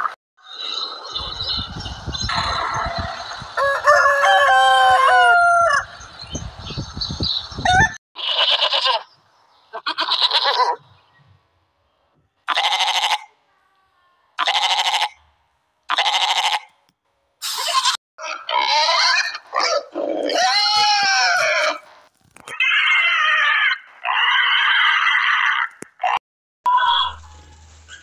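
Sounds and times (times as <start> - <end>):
rooster crowing: 2.4 - 6.0
goat bleating: 8.2 - 9.1, 9.7 - 10.7, 12.5 - 13.3, 14.4 - 15.2, 15.9 - 16.7, 17.4 - 19.3.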